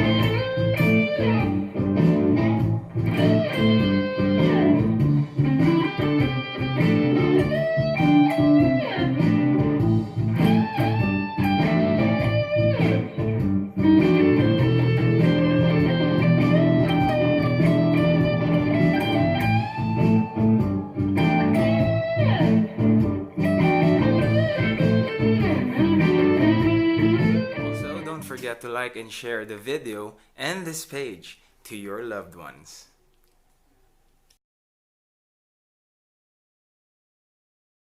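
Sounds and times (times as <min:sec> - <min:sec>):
electric guitar playing blues: 0:00.0 - 0:28.9.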